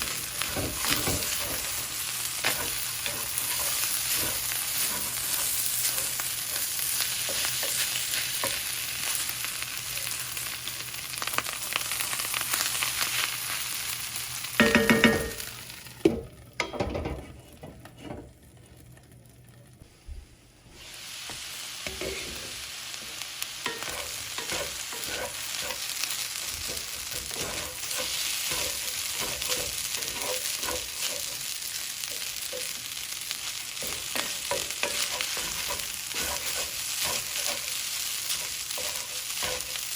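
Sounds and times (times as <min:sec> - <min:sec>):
spatula scraping a pan: 0:00.0 - 0:10.4, 0:21.8 - 0:22.7, 0:23.6 - 0:39.9
rice sizzling in a hot pan: 0:00.0 - 0:19.8, 0:20.7 - 0:39.9.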